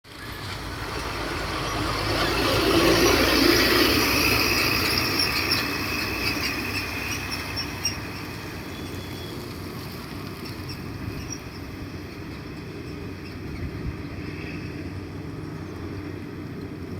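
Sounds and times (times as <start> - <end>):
high-pitched metallic squealing: 1.6 - 13.8.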